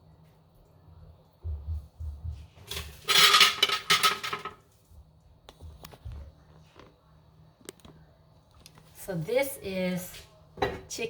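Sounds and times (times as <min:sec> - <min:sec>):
dishes and utensils clattering: 0:02.6 - 0:04.6.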